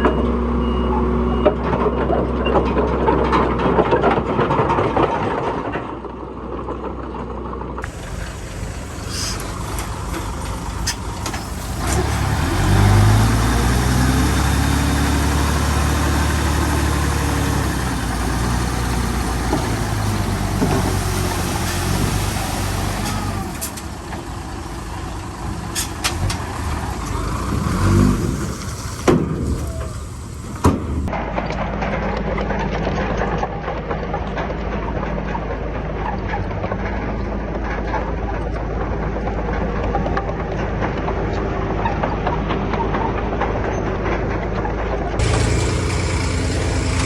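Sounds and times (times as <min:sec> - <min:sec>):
heavy diesel engine revving: 0:07.8 - 0:31.1, 0:45.2 - 0:47.0.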